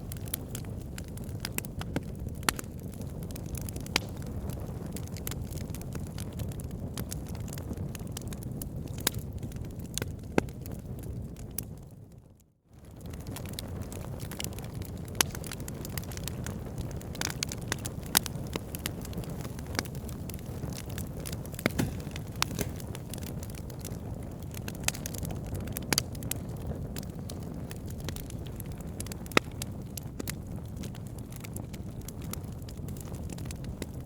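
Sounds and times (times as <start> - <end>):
crackles and pops of burning logs: 0.0 - 12.2, 12.8 - 34.0
rush of flames: 13.2 - 32.0.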